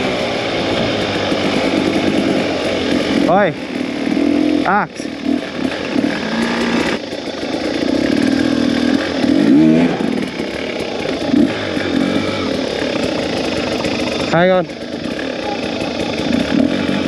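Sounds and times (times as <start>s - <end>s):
two-stroke dirt bike engine: 0.0s - 17.0s.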